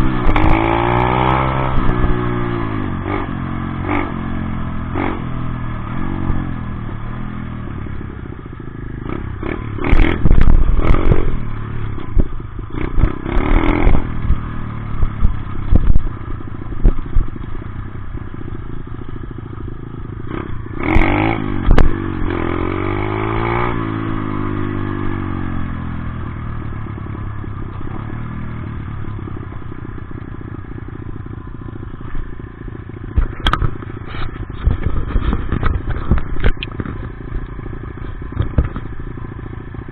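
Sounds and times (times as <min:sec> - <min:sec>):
dirt bike engine revving: 0:00.0 - 0:08.1, 0:08.8 - 0:17.4, 0:20.2 - 0:25.8.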